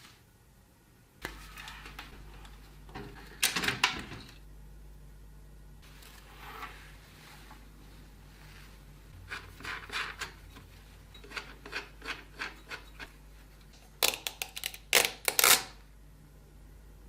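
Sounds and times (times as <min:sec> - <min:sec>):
hands scraping computer hardware: 0:09.2 - 0:13.1.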